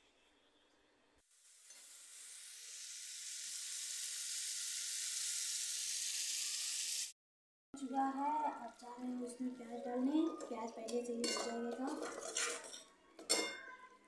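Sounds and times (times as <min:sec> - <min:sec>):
paste sizzling in hot oil: 0:01.2 - 0:07.2.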